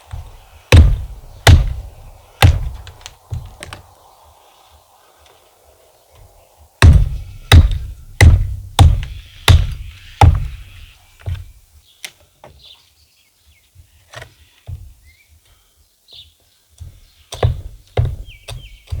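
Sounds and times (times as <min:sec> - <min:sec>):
axe chopping firewood: 0:00.0 - 0:03.9, 0:06.8 - 0:11.5, 0:16.8 - 0:19.0
light wooden knocks: 0:00.0 - 0:03.9, 0:11.2 - 0:12.7, 0:14.1 - 0:15.0, 0:16.1 - 0:19.0.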